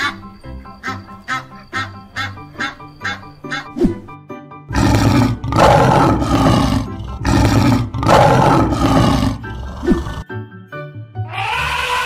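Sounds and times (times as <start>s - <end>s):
light background music: 0.0s - 12.0s
lion roaring: 4.7s - 10.2s.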